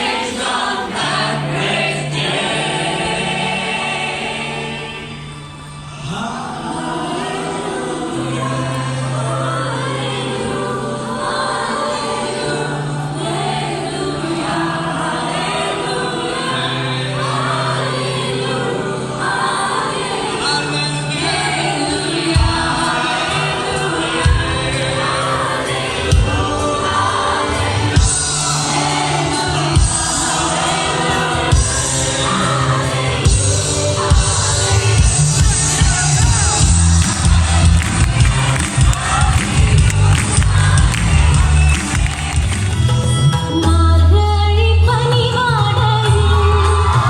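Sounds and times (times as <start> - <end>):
group singing worship music: 0.0 - 43.4
strong beats: 31.4 - 43.1.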